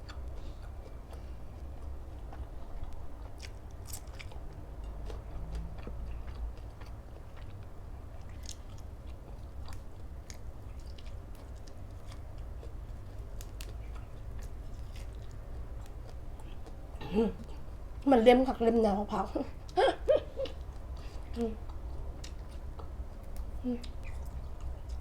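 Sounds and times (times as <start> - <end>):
person chewing food: 0.0 - 18.0, 19.5 - 25.0.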